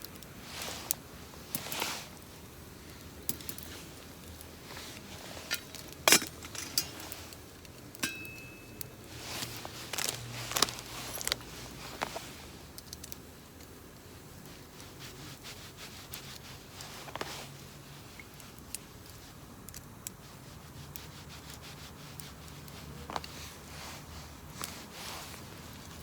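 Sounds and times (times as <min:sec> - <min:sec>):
metallic clinks of camping gear: 0:04.8 - 0:12.2
short metallic ring: 0:08.0 - 0:08.8.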